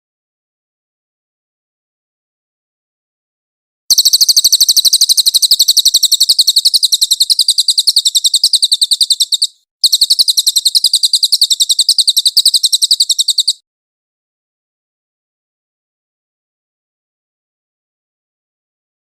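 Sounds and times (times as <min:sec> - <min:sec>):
songbird rapid high trill: 0:03.9 - 0:13.6.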